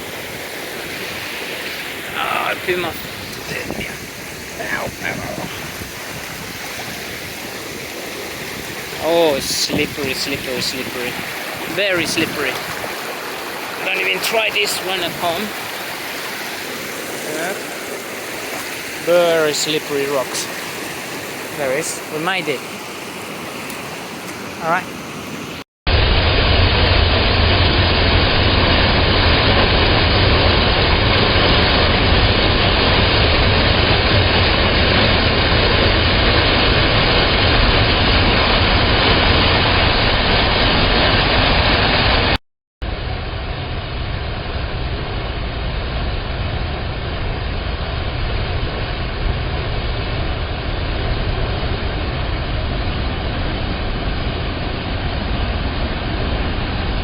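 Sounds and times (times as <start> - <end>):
waterfall roaring: 0.0 - 42.4.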